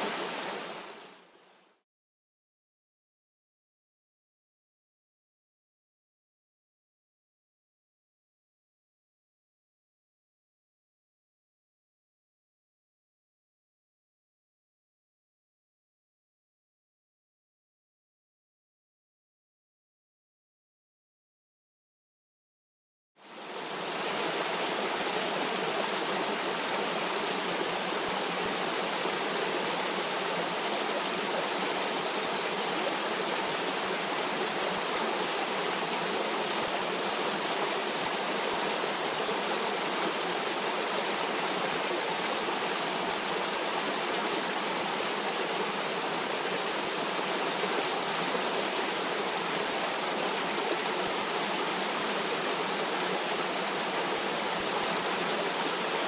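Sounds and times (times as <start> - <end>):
stream water flowing: 0.0 - 1.7, 23.2 - 56.0.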